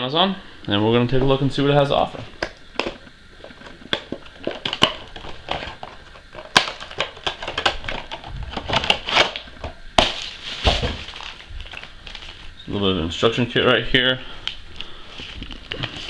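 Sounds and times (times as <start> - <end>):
packaging crinkling and rustling: 2.0 - 12.6.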